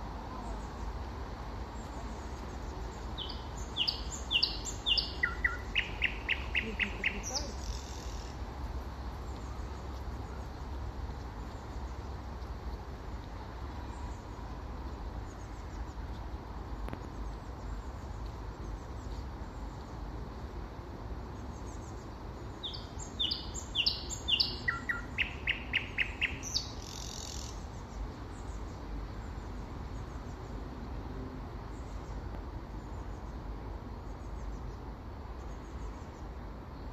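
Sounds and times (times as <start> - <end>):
birds chirping faintly: 1.8 - 8.4, 21.4 - 30.6
nightingale singing: 1.8 - 8.4, 21.6 - 28.8.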